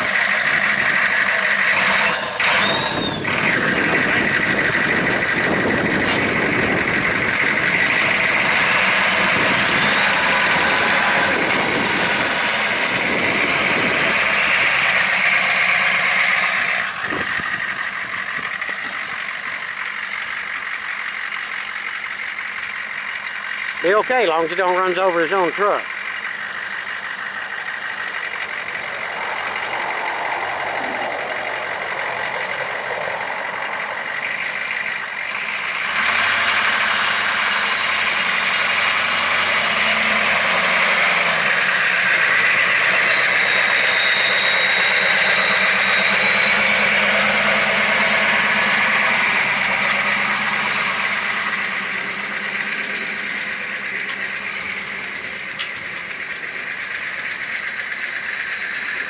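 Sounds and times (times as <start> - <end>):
monster truck engine running: 0.0 - 59.0
high whine sliding down in pitch: 5.4 - 17.7, 27.9 - 34.2, 36.4 - 56.3.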